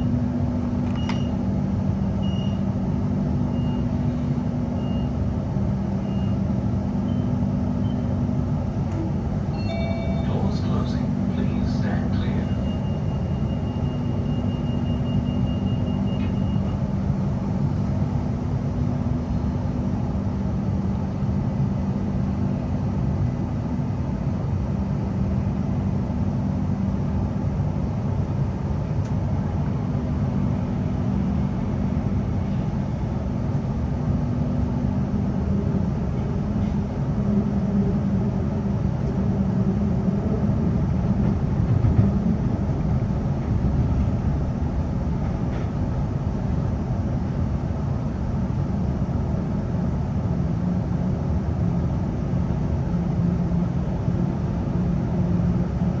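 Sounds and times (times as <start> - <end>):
electric train rumble and hum: 0.0 - 56.0
door-closing warning beep: 0.9 - 1.4, 2.0 - 2.7, 3.5 - 3.9, 4.8 - 5.2, 6.0 - 6.4, 7.0 - 8.1, 9.5 - 10.5, 12.3 - 16.8.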